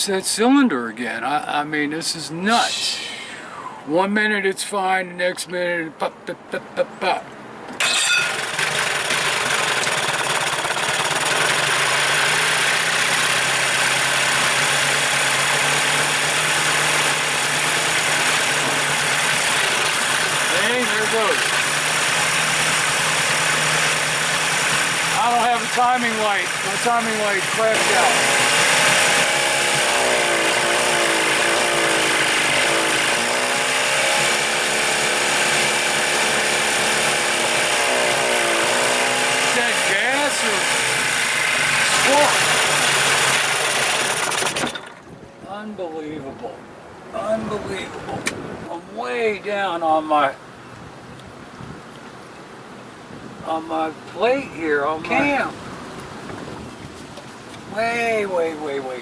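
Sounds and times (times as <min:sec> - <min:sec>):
outboard motor running: 0:07.8 - 0:45.2.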